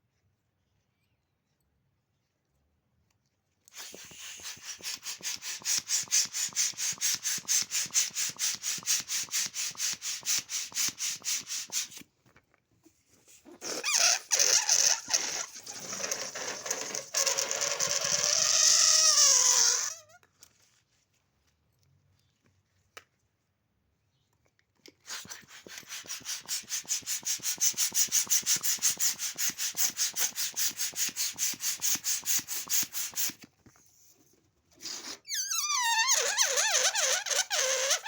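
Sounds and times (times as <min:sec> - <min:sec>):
balloon pump strokes: 0:03.7 - 0:12.1, 0:13.2 - 0:20.2, 0:25.0 - 0:33.6, 0:34.7 - 0:38.0
air squealing from balloon: 0:03.8 - 0:12.0, 0:13.4 - 0:20.2, 0:25.1 - 0:33.4, 0:34.8 - 0:38.0.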